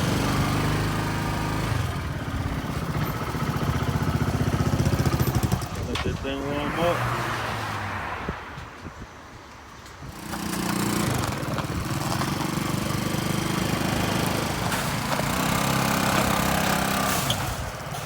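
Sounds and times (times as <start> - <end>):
go-kart engine running: 0.0 - 6.0, 10.0 - 18.0.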